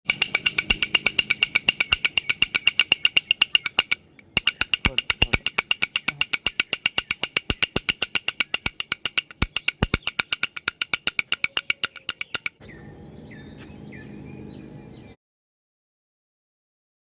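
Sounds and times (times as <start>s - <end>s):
toy rattle shaking: 0.0s - 12.6s.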